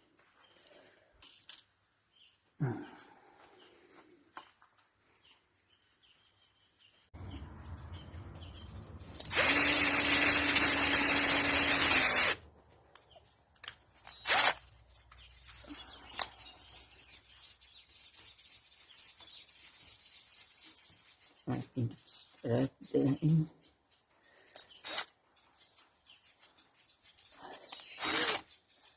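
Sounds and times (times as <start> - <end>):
electric drill running: 9.2 - 12.4, 14.1 - 14.6, 24.8 - 25.1, 28.0 - 28.4.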